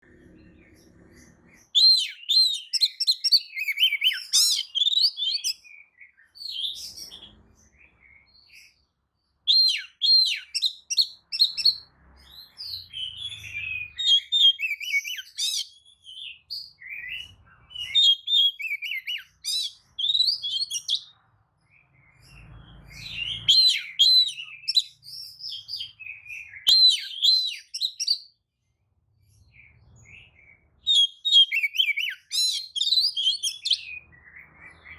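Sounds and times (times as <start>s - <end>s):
bird whistles and chirps: 0.4s - 8.8s, 9.4s - 28.4s, 29.3s - 34.9s.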